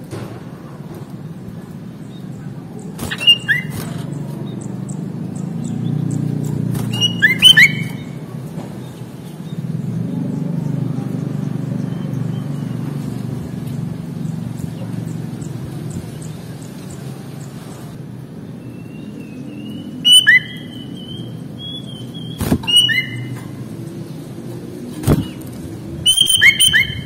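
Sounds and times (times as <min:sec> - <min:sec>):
bird whistled song: 0:02.1 - 0:09.6, 0:18.6 - 0:23.5, 0:25.0 - 0:27.0.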